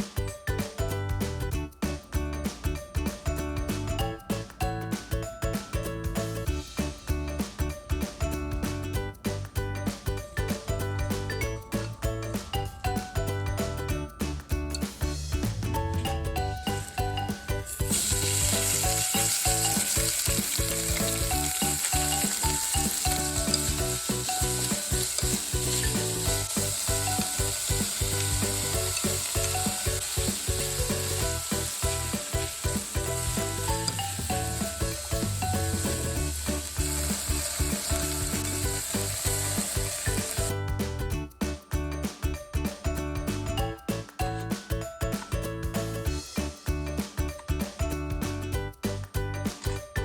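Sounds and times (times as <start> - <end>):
stir-fry sizzling in a frying pan: 17.7 - 40.5.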